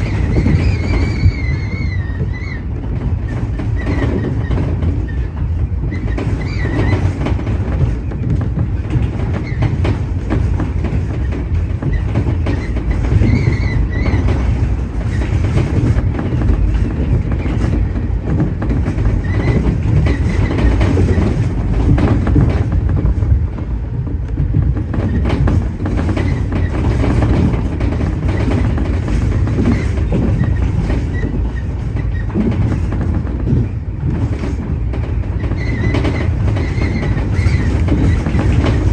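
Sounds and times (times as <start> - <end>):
faint high squeals: 0.0 - 2.7
clicks over rail joints: 0.0 - 38.9
train wheels rumbling on rail: 0.0 - 38.9.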